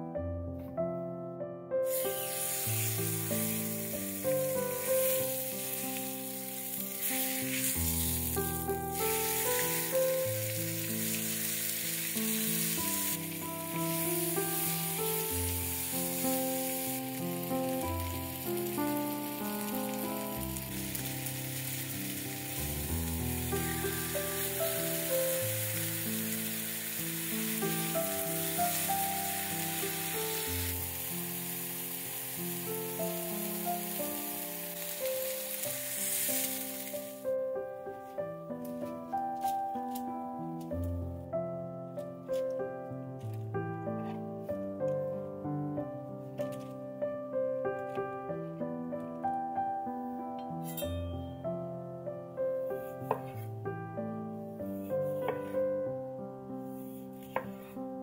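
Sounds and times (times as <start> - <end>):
background music with held notes: 0.0 - 58.0
chicken sizzling in a skillet: 1.8 - 37.4.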